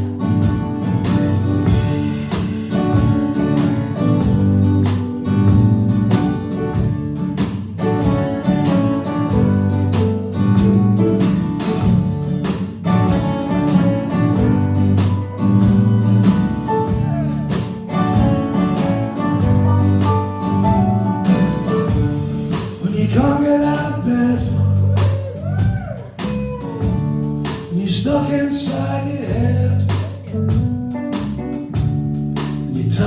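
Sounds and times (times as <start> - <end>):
live rock band playing: 0.0 - 33.0.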